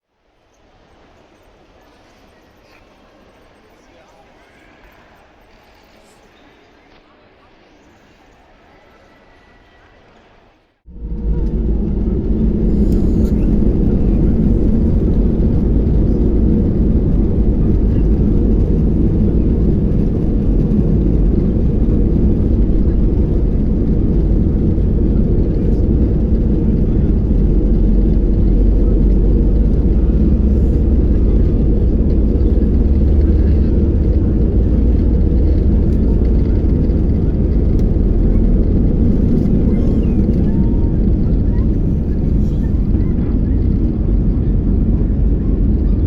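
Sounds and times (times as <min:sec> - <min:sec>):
runway rumble: 0:00.2 - 0:46.0
jet engines rumbling in cabin: 0:10.8 - 0:46.0.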